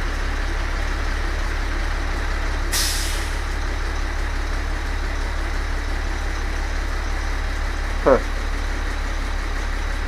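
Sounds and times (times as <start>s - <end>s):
diesel bus engine idling: 0.0s - 10.0s
air brake hiss: 2.7s - 3.4s.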